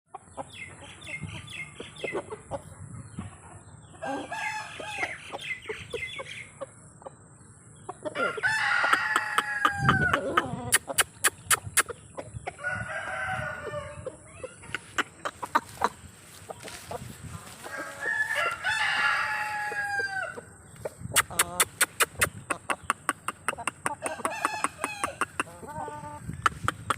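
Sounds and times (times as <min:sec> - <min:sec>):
chicken clucking: 0:00.1 - 0:26.9
rooster crowing: 0:08.2 - 0:10.3, 0:12.6 - 0:14.0, 0:17.6 - 0:20.4, 0:24.0 - 0:25.2
sharp clicks: 0:21.2 - 0:25.5.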